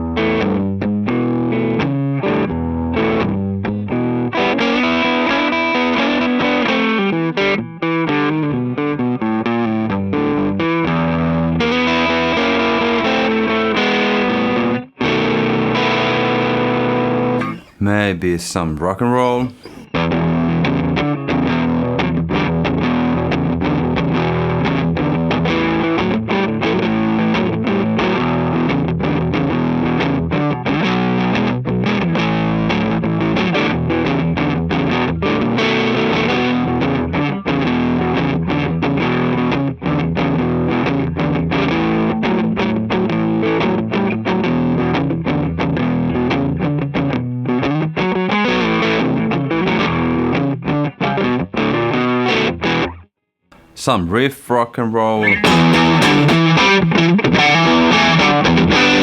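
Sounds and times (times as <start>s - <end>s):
distorted electric guitar chords: 55.2s - 59.0s.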